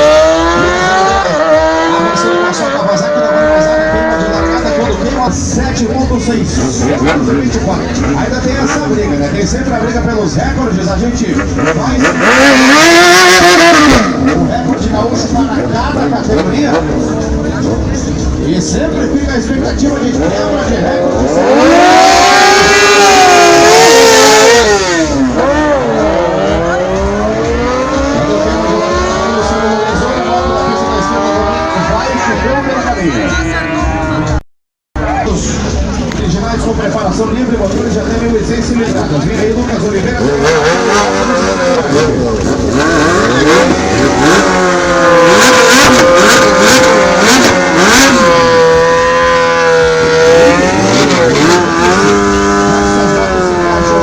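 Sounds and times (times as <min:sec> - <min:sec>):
motorcycle engines revving: 0:00.0 - 0:34.4, 0:35.2 - 0:54.0.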